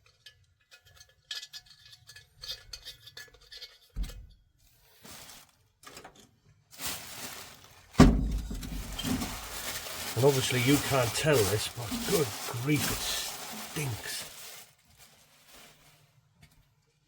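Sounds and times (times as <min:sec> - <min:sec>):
dull thump: 0:08.0 - 0:09.4.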